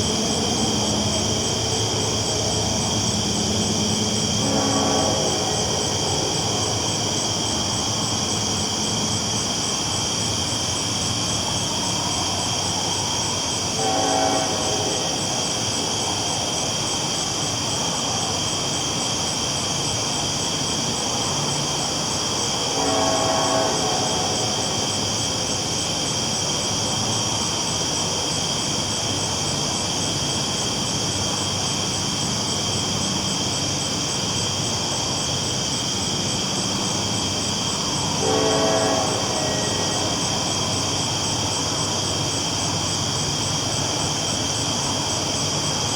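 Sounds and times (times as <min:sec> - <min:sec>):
train rolling on tracks: 0:00.0 - 0:45.9
train horn blasts: 0:02.6 - 0:06.9, 0:13.8 - 0:15.6, 0:22.7 - 0:24.8, 0:37.9 - 0:40.9.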